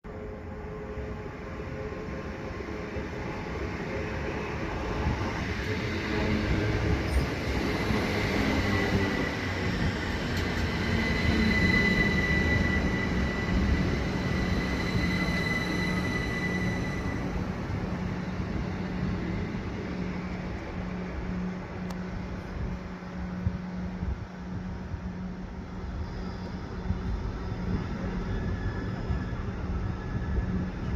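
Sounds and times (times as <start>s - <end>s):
electric train rumble: 0.1s - 30.9s
high squeal from running gear: 10.4s - 17.4s, 25.9s - 30.9s.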